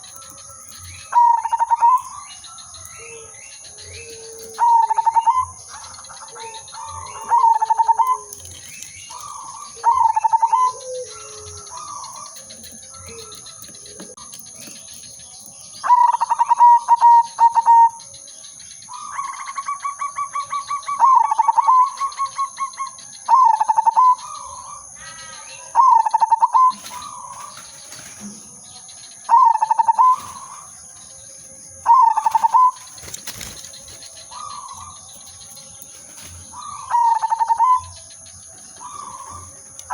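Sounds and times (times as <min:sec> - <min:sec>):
dove cooing: 0:00.0 - 0:15.1, 0:15.8 - 0:18.1, 0:18.9 - 0:24.8, 0:29.3 - 0:30.7, 0:31.8 - 0:39.9.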